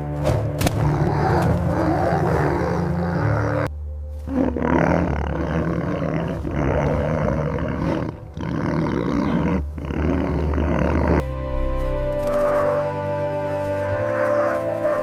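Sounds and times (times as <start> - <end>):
large animal roaring: 0.8 - 11.2.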